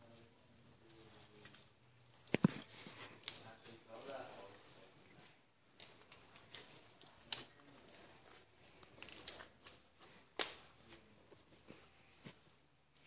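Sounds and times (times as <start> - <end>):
slime squished by hand: 5.2 - 11.1.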